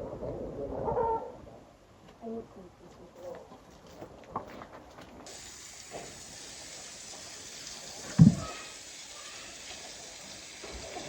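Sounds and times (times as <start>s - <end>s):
running water: 5.2s - 11.0s
dull thump: 8.1s - 8.5s.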